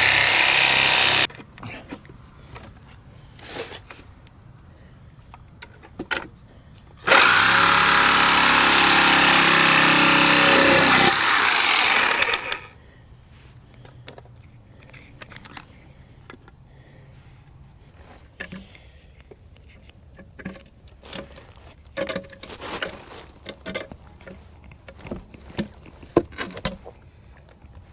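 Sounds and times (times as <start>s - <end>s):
power tool running: 0.0s - 1.3s, 7.0s - 12.7s
small clicks and knocks: 18.4s - 27.8s.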